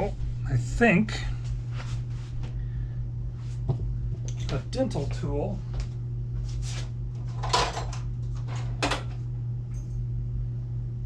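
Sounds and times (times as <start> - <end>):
steady low hum: 0.0 - 11.0
metal parts clattering on workbench: 7.4 - 9.1.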